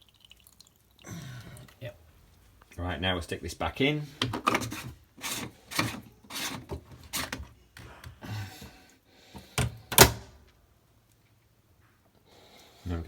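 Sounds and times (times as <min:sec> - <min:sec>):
plastic clicks and knocks: 0:04.2 - 0:04.9.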